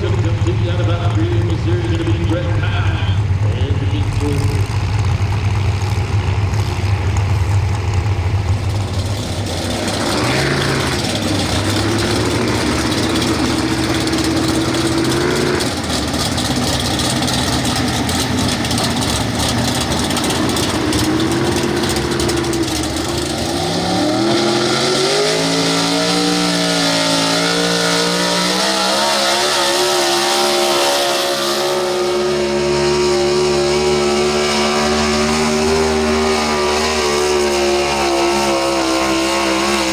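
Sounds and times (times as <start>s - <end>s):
truck engine revving: 0.0s - 39.9s.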